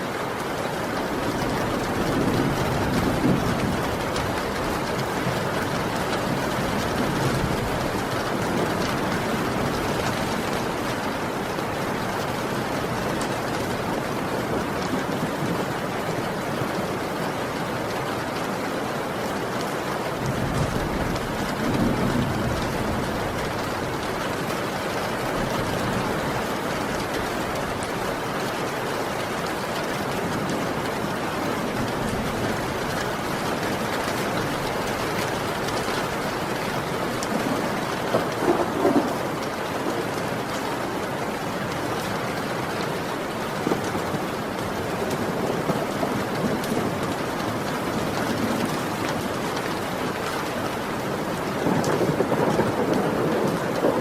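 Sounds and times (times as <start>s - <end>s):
heavy rain falling: 0.0s - 54.0s
low rumble of thunder: 1.2s - 15.8s, 20.2s - 27.9s, 30.3s - 40.1s, 51.2s - 54.0s.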